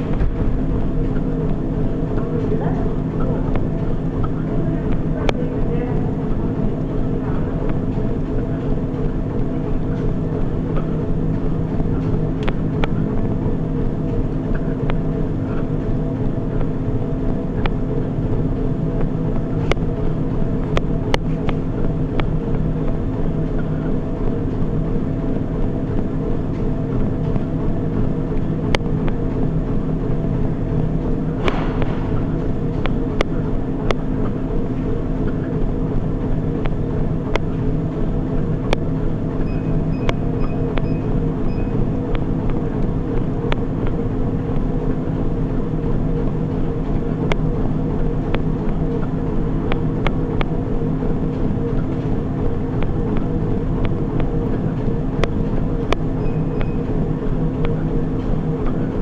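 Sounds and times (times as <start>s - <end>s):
treadmill motor hum and belt whir: 0.0s - 59.0s.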